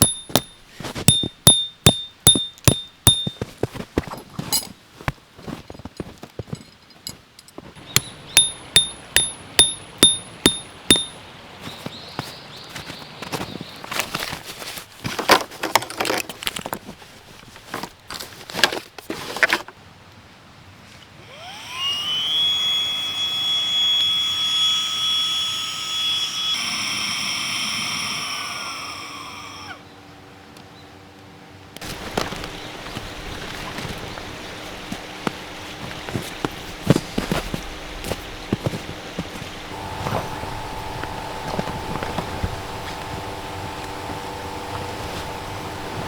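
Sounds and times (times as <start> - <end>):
handling clicks and knocks: 0.0 - 19.8, 31.8 - 46.0
small motor whining: 21.2 - 29.8, 31.8 - 46.0.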